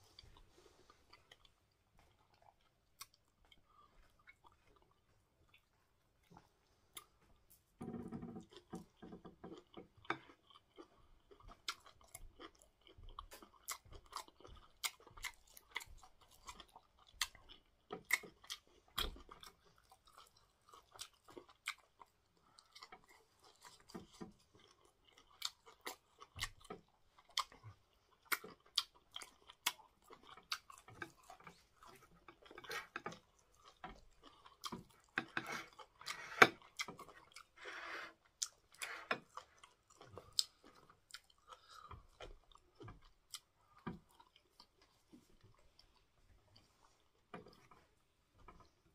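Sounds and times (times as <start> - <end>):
man chewing food: 0.0 - 48.9.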